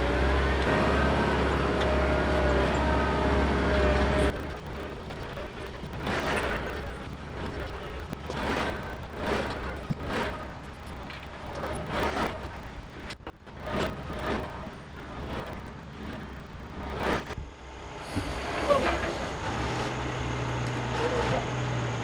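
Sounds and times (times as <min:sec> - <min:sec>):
tractor diesel engine running: 0:00.0 - 0:10.4, 0:15.9 - 0:22.0.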